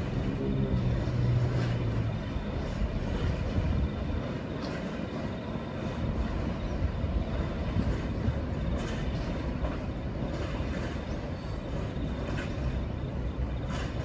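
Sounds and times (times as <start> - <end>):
train rumbling on tracks: 0.0 - 14.0.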